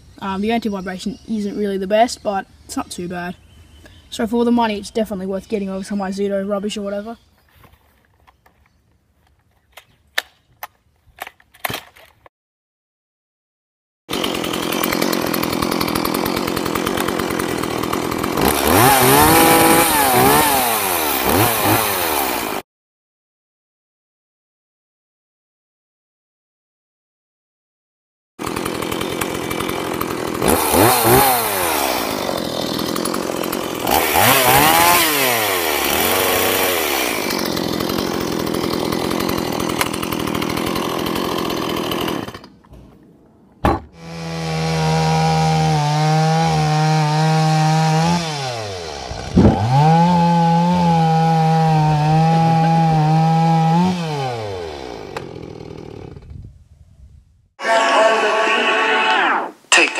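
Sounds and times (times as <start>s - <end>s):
chainsaw revving and cutting wood: 14.1s - 22.7s, 28.4s - 42.9s, 43.7s - 56.4s, 57.6s - 59.9s.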